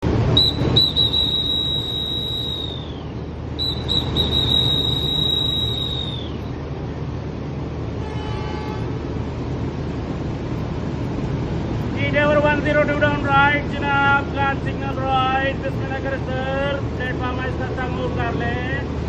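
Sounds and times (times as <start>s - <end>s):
steady background noise: 0.0s - 19.0s
hand whistle blasts: 0.3s - 6.6s.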